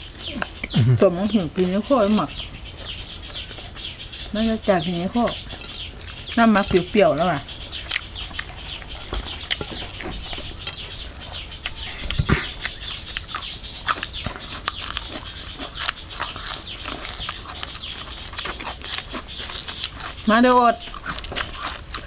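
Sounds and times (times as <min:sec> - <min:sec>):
chewing food with crunches: 0:00.0 - 0:22.0
wet mouth clicks: 0:11.6 - 0:19.0.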